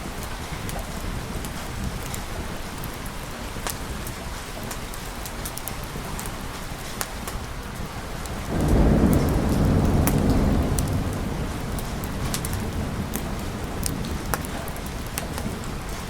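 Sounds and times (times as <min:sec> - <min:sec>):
raindrops ticking: 0:00.0 - 0:16.0
steady rain: 0:00.0 - 0:16.0
thunder rumble: 0:08.3 - 0:16.0.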